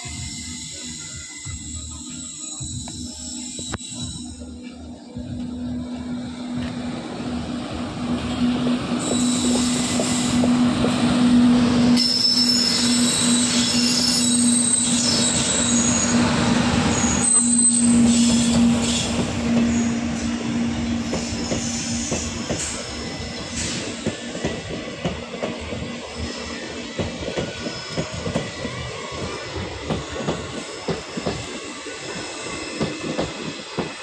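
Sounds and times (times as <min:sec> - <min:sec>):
low train hum: 0:00.0 - 0:34.0
train wheels clattering over rails: 0:08.1 - 0:34.0
high-pitched wheel squeal: 0:09.0 - 0:10.6, 0:11.3 - 0:24.0.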